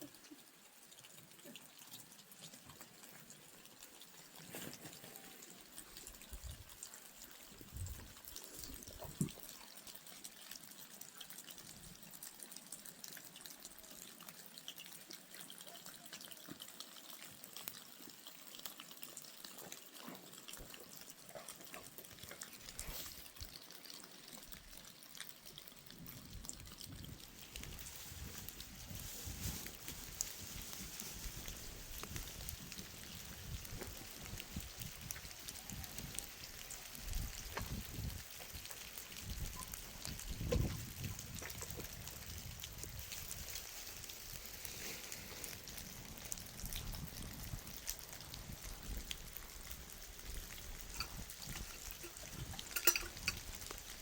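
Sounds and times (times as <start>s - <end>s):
drops and drips ticking: 0.0s - 54.0s
faint steady rain: 0.0s - 54.0s
sharp raindrop ticks: 45.7s - 54.0s.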